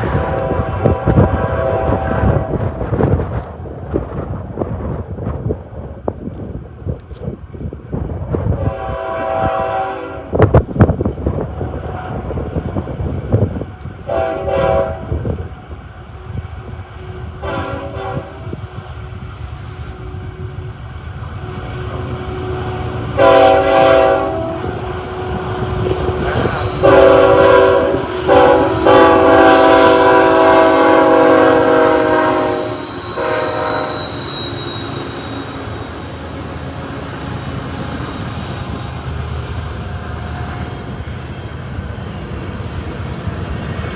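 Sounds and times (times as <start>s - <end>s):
locomotive air horn blasts: 0.0s - 2.9s, 8.5s - 10.5s, 11.6s - 18.8s, 19.7s - 36.5s
wind buffeting microphone: 0.0s - 33.9s
train rumbling: 0.0s - 43.9s.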